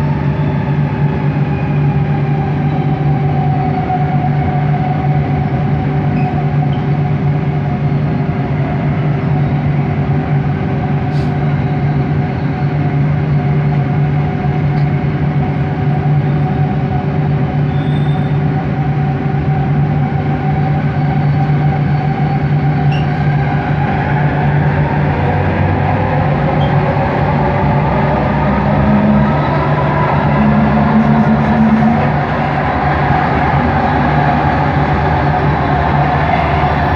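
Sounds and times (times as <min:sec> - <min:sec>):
metro train rumbling: 0:00.0 - 0:36.9
rising motor whine: 0:23.2 - 0:36.9.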